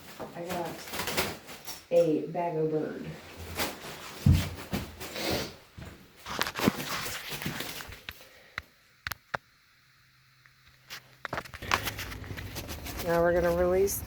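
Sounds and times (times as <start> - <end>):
rustling handling noise: 5.8 - 8.3, 10.7 - 14.0
footsteps: 10.8 - 14.0.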